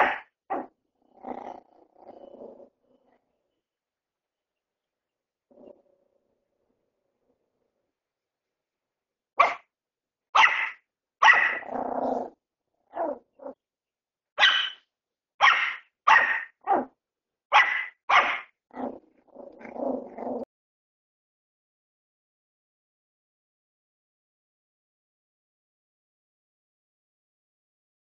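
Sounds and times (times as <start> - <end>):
puppy barking: 0.0 - 0.7, 9.4 - 9.7, 10.4 - 12.3, 12.9 - 13.6, 14.4 - 14.8, 15.4 - 16.9, 17.5 - 18.9
puppy growling: 0.0 - 3.6, 5.5 - 7.8, 11.3 - 13.6, 16.2 - 16.9, 17.7 - 20.5.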